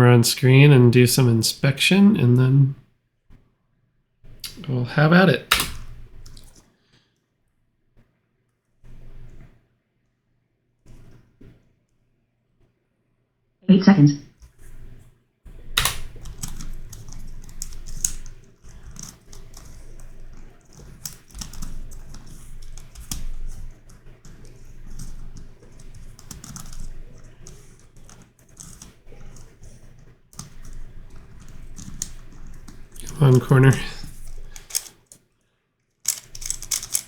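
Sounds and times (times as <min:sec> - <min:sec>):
puzzle cube plastic clicks: 0:05.4 - 0:06.6, 0:15.7 - 0:29.6, 0:30.4 - 0:35.2, 0:36.0 - 0:37.0.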